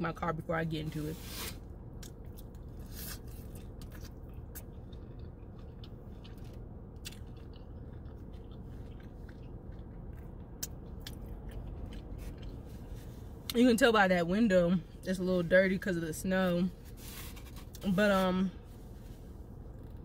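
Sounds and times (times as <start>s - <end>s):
steady low hum: 0.0s - 20.0s
biting and chewing food: 1.9s - 13.4s.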